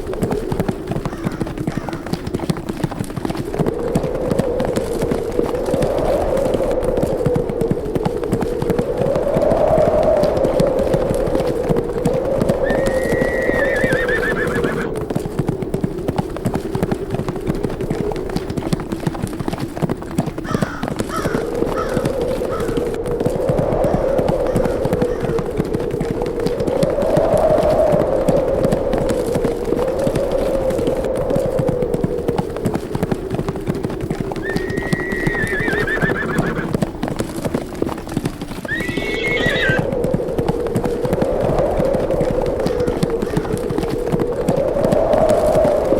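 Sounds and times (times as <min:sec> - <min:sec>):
horses galloping: 0:00.0 - 0:45.9
wind howling: 0:00.0 - 0:45.9
horse neighing: 0:12.6 - 0:14.9, 0:34.4 - 0:36.7, 0:38.7 - 0:39.9.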